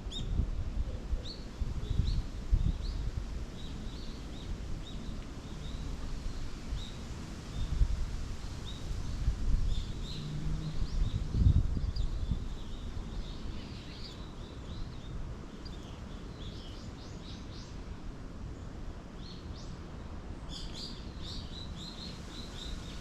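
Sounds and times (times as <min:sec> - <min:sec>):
small birds chirping: 0:09.7 - 0:17.8.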